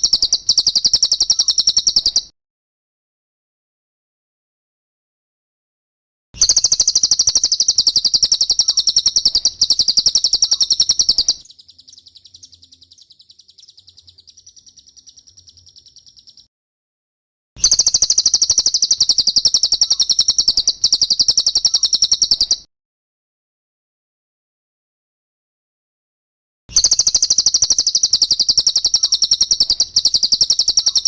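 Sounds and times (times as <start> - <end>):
bird high-pitched trill: 0.0 - 2.3, 6.4 - 16.5, 17.6 - 22.7, 26.7 - 31.0.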